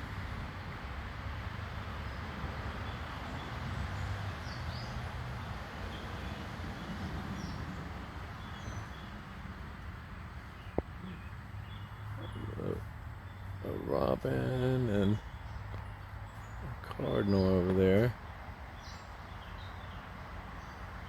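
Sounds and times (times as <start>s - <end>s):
low outdoor rumble: 6.7s - 19.8s
faint bird chirps: 10.5s - 18.1s.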